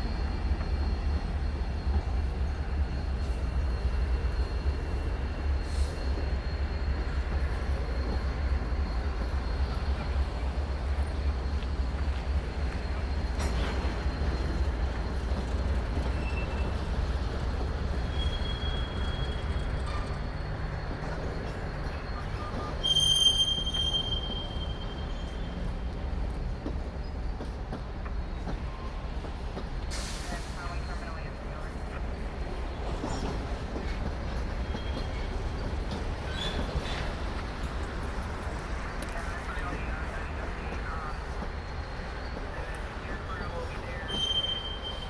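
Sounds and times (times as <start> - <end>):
freight train rumbling past: 0.0 - 45.0
train wheel squeal: 0.0 - 45.0.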